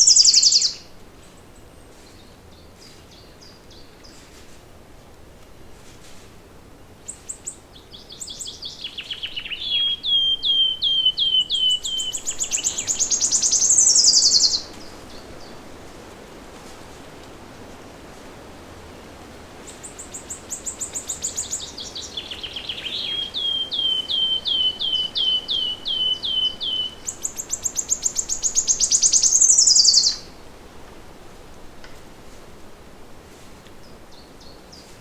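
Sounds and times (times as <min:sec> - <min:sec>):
songbird singing: 0:00.0 - 0:04.3, 0:07.0 - 0:15.8, 0:19.6 - 0:30.5, 0:33.7 - 0:35.0
low background hiss: 0:00.0 - 0:35.0.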